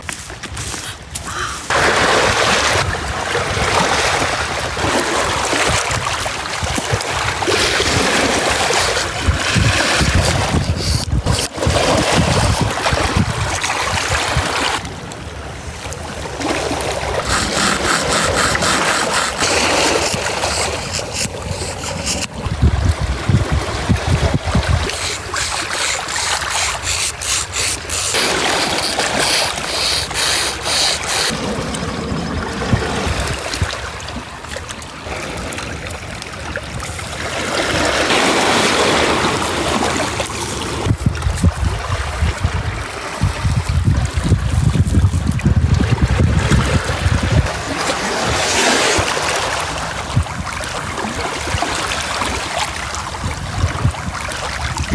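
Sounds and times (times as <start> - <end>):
water splashing and running: 0.0 - 14.8, 16.4 - 54.9
water running and splashing: 17.2 - 22.5, 24.8 - 31.5.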